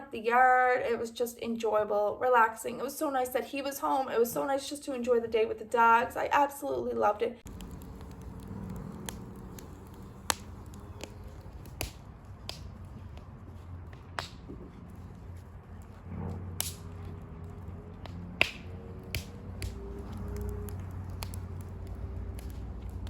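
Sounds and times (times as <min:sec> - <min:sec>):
wood fire crackling and popping: 0:07.4 - 0:23.0.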